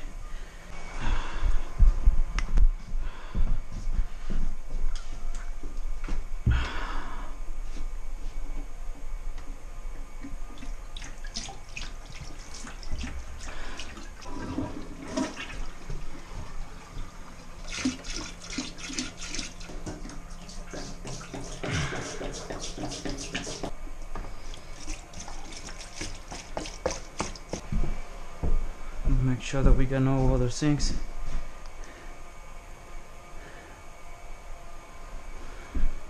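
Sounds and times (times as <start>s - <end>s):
water draining through plumbing: 10.2s - 27.6s.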